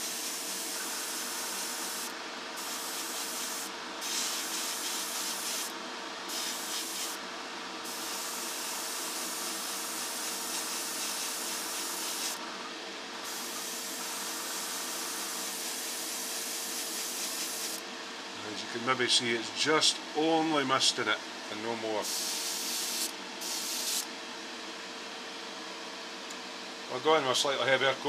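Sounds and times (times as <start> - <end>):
airbrush air hiss: 0.0 - 5.7, 6.3 - 7.2, 7.8 - 12.4, 13.2 - 17.8, 22.0 - 24.1.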